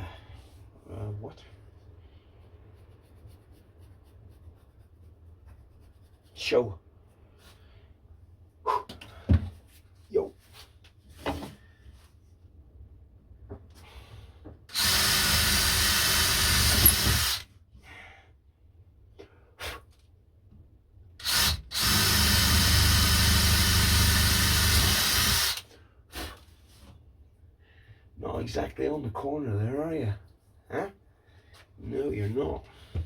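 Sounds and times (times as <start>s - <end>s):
electric power tool running: 14.7s - 17.4s.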